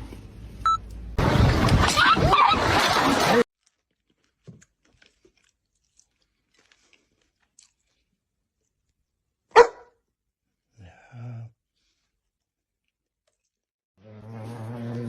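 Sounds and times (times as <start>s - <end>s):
dog barking: 9.5s - 10.0s.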